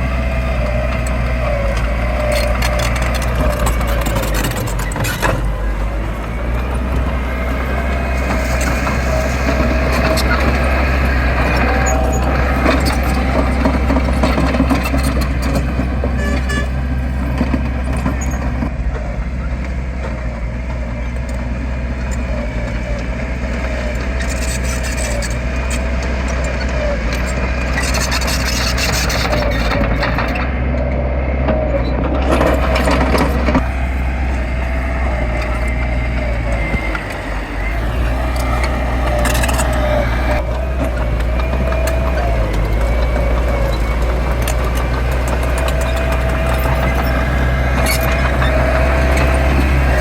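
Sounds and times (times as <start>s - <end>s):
earth-moving machine diesel engine: 0.0s - 50.0s
wavering whine: 31.9s - 50.0s.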